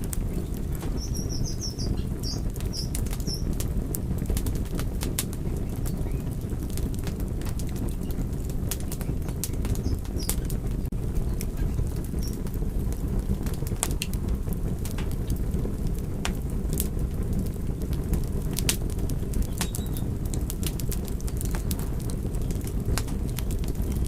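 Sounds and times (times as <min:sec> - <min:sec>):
low rumble of burning: 0:00.0 - 0:24.0
wood fire crackling: 0:00.0 - 0:24.0.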